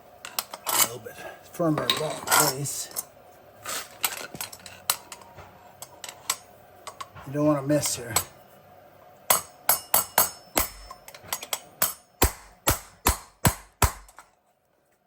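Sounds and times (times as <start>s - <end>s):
hammer striking metal: 9.3s - 14.2s.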